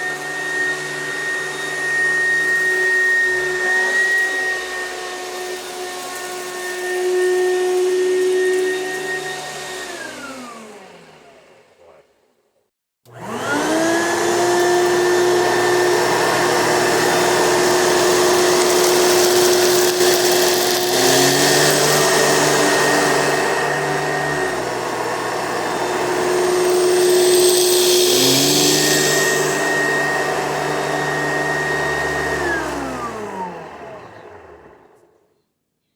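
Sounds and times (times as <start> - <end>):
vacuum cleaner motor whine: 0.0 - 12.0, 13.1 - 35.2.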